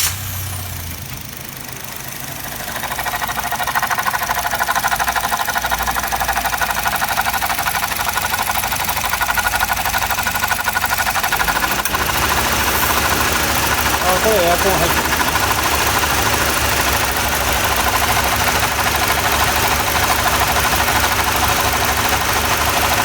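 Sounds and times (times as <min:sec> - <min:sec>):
car engine idling: 0:00.0 - 0:23.0
rhythmic croaking alternator noise: 0:02.8 - 0:20.9.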